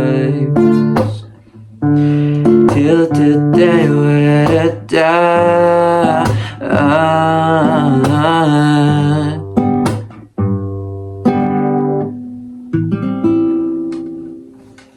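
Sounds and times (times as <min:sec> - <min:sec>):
person singing with vibrato: 0:00.0 - 0:09.7
acoustic guitar chords: 0:00.0 - 0:14.9.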